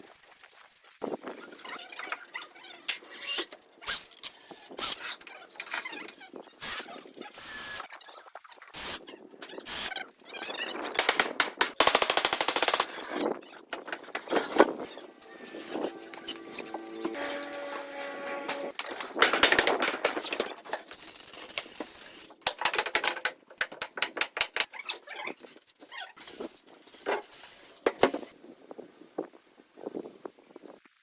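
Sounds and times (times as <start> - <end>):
sharp knocks and bangs: 13.8 - 20.5.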